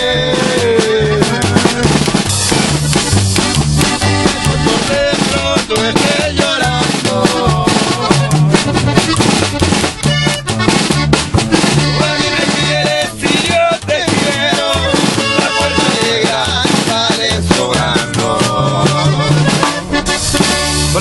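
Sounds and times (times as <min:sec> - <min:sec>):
alternating bass line: 0:00.0 - 0:21.0
live band instrumental music: 0:00.0 - 0:21.0.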